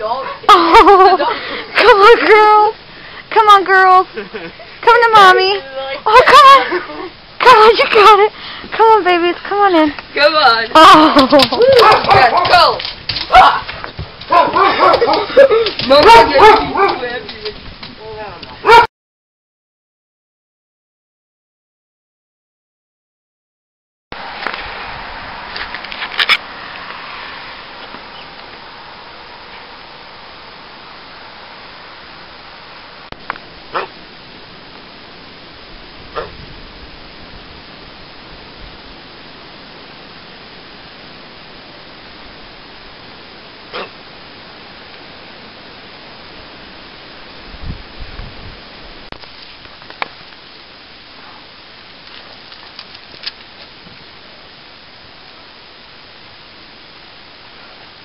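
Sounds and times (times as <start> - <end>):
blizzard wind rushing: 24.2 - 49.1.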